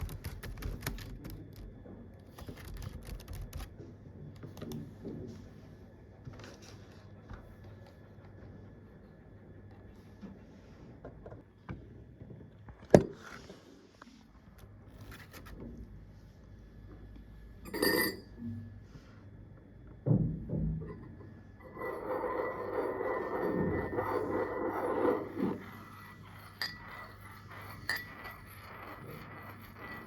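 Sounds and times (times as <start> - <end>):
ringing clink: 17.7 - 18.4
steady scraping: 21.6 - 30.0.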